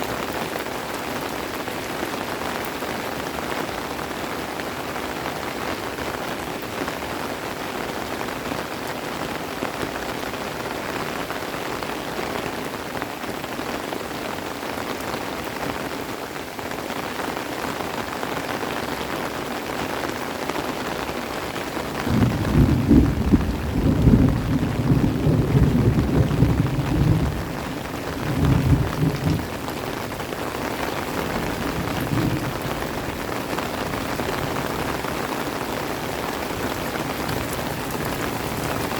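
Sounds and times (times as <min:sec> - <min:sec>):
heavy rain falling: 0:00.0 - 0:38.9
thunder rumbling: 0:22.0 - 0:38.9.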